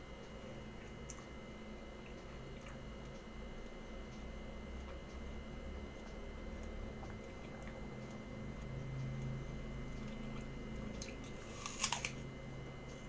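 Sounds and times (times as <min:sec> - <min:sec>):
person chewing crisp apple: 0:10.0 - 0:12.3.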